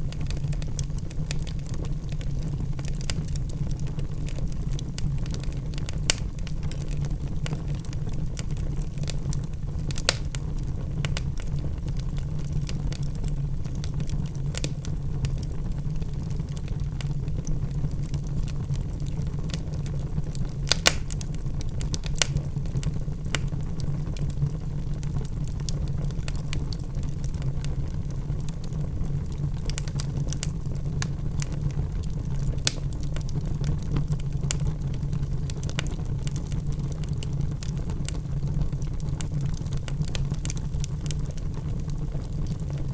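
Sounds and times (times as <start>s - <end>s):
wood fire burning in a fireplace: 0.0s - 42.9s.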